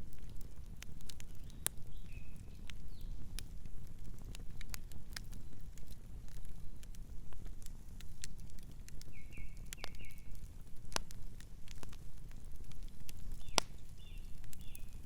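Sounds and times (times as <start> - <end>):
campfire crackling and popping: 0.0 - 15.0
bird chirping: 9.1 - 10.3.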